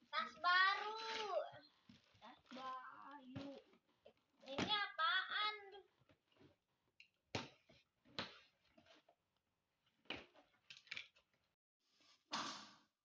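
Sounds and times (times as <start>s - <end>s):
scraping and rustling handling noises: 0.3s - 4.7s.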